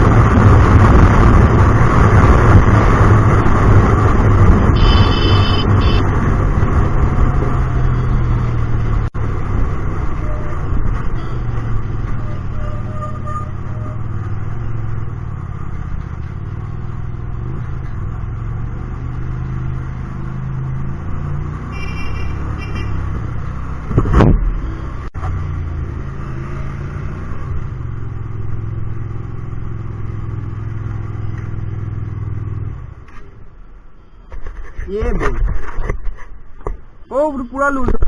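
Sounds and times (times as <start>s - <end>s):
motorcycle engine revving: 0.0s - 32.7s
short high-pitched tone: 4.8s - 6.0s.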